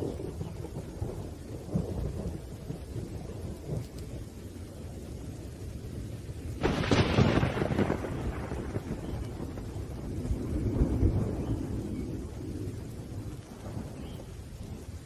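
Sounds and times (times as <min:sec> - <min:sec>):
low thunder rumbling: 0:00.0 - 0:15.0
rain: 0:00.0 - 0:15.0
loud crack of thunder: 0:06.6 - 0:14.1.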